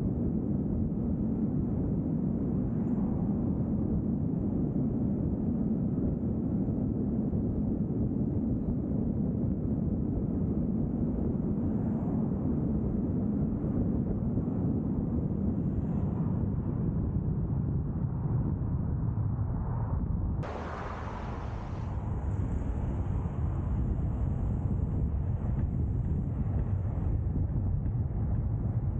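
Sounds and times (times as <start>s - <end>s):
vehicle driving on road: 20.4s - 28.9s.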